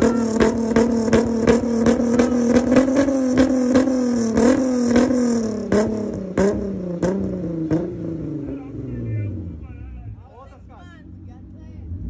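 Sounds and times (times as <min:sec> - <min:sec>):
exhaust pops and crackles: 0:00.0 - 0:08.7
car engine at high revs: 0:00.0 - 0:09.9, 0:11.0 - 0:12.0.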